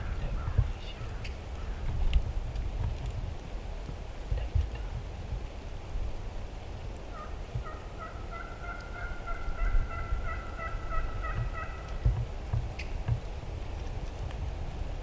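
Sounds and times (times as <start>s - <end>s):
wind on microphone: 0.0s - 8.3s, 9.2s - 15.0s
turkey calling: 7.1s - 12.0s.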